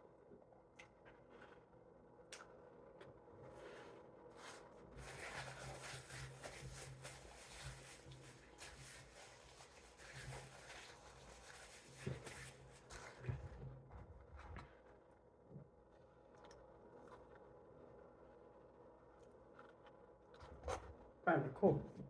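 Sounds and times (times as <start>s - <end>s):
rustling food wrappers: 4.4s - 13.5s.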